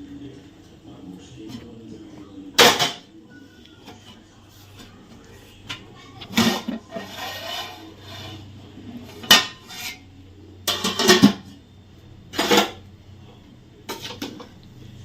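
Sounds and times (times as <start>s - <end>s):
metal spoon scraping a pot: 6.2s - 11.5s.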